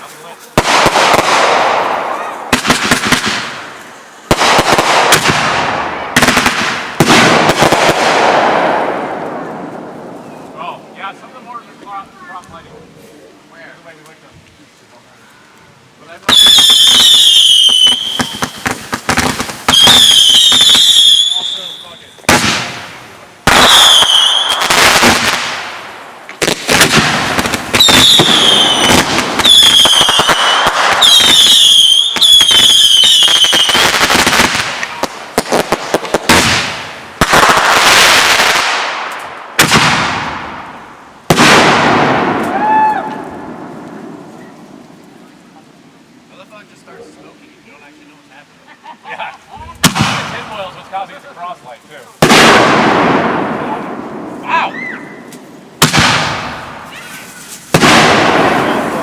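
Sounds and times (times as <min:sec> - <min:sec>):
firework bangs: 0:00.0 - 0:11.0, 0:16.2 - 0:45.3, 0:49.7 - 0:51.2, 0:52.2 - 0:59.0
crackling pops and hiss: 0:00.0 - 0:48.6, 0:49.4 - 0:59.0
shrill firework whistles: 0:16.3 - 0:18.8, 0:19.6 - 0:22.2, 0:23.6 - 0:24.7, 0:27.7 - 0:34.0.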